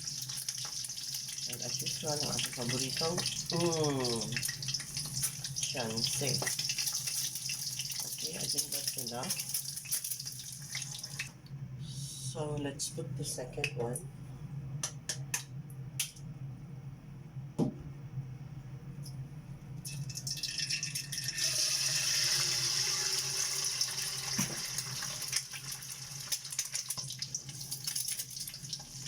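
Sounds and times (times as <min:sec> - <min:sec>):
egg sizzling in hot oil: 0:00.0 - 0:11.4, 0:19.9 - 0:29.0.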